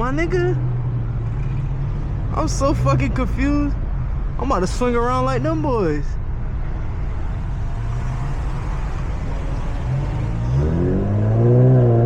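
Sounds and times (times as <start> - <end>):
car engine revving: 7.2 - 12.0.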